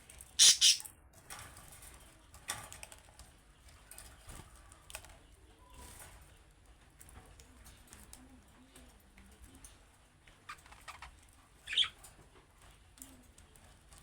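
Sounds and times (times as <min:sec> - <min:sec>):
budgerigars chattering: 0:00.4 - 0:00.8
harsh bird chirps: 0:00.4 - 0:00.8, 0:11.6 - 0:12.0.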